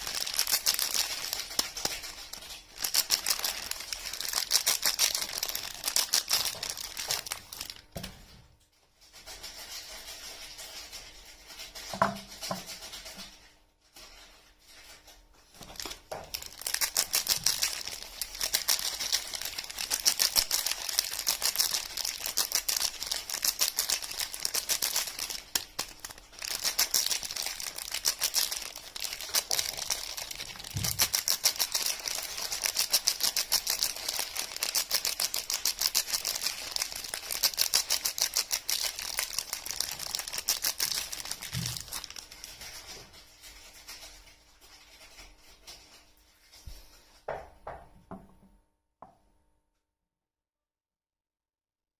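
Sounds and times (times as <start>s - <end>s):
packaging crinkling and tearing: 0.0s - 8.2s, 14.0s - 46.0s.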